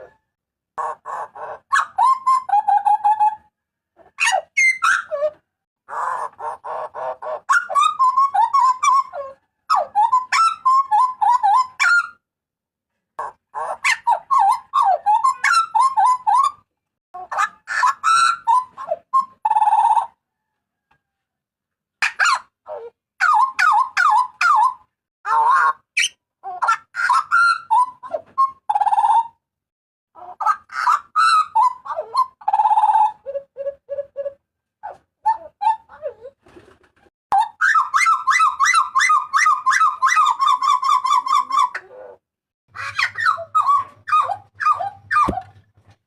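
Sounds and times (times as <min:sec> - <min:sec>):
bird whistles and squawks: 0:04.2 - 0:12.2, 0:13.2 - 0:16.6, 0:17.3 - 0:20.2, 0:22.0 - 0:29.4, 0:30.3 - 0:36.3, 0:37.4 - 0:42.2, 0:42.8 - 0:45.6.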